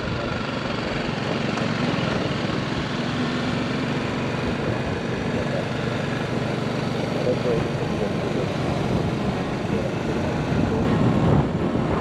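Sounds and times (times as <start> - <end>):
motorcycle engine drone: 0.0 - 12.0
wind rushing over microphone: 8.2 - 12.0.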